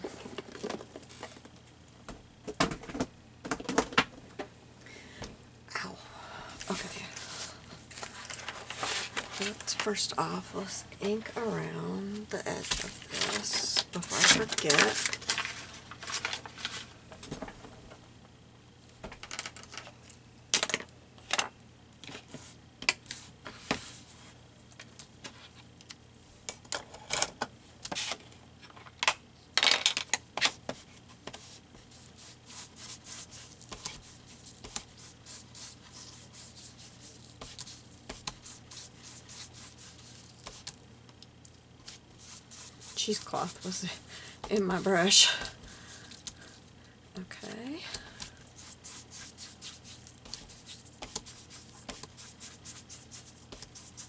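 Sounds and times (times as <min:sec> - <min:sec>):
brush scratching on paper: 0:31.4 - 0:40.8, 0:41.8 - 0:46.3, 0:48.4 - 0:54.0.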